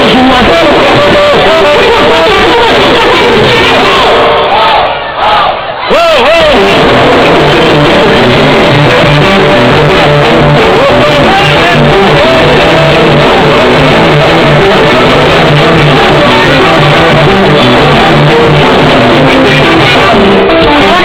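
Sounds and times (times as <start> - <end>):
electric guitar: 0.0 - 4.6, 6.2 - 21.0
repeating bass line: 0.0 - 4.9, 6.2 - 21.0
loud live band music: 0.0 - 21.0.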